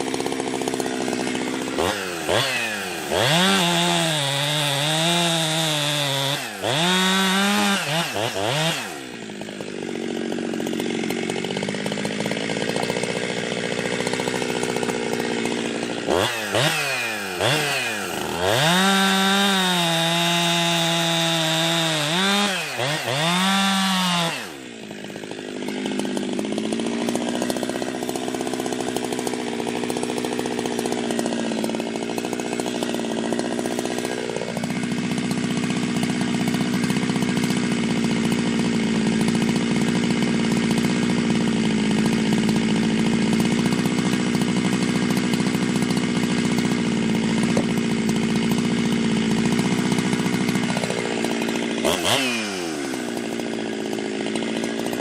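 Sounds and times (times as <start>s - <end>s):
chainsaw running at high revs: 0.0s - 55.0s.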